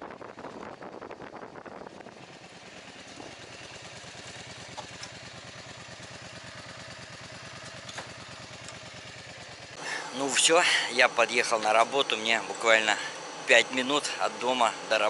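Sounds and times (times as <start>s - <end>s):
wind on microphone: 0.0s - 3.4s
motorcycle engine idling: 0.0s - 15.0s.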